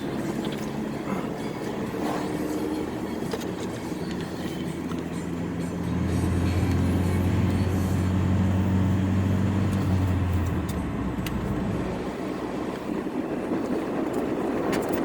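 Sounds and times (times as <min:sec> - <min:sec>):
steady low drone: 0:04.3 - 0:14.0.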